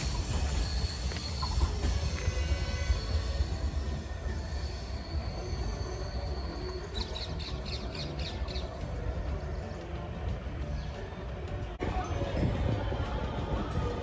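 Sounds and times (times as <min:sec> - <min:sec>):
high wheel squeal: 0:00.0 - 0:08.8
distant train rumble: 0:00.0 - 0:14.0
bird chirping: 0:05.3 - 0:09.0.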